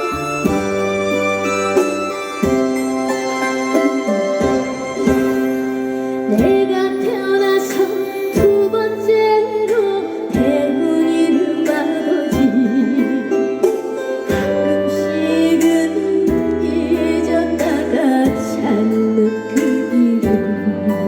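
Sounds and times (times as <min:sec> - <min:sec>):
instrumental backing: 0:00.0 - 0:21.0
woman singing with vibrato: 0:06.3 - 0:13.6, 0:14.4 - 0:21.0.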